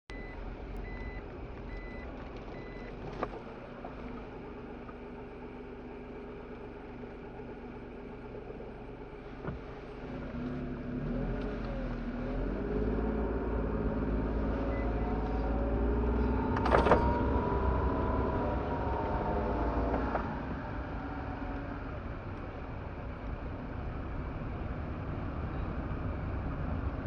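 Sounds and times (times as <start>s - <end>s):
car engine revving: 2.6s - 22.1s.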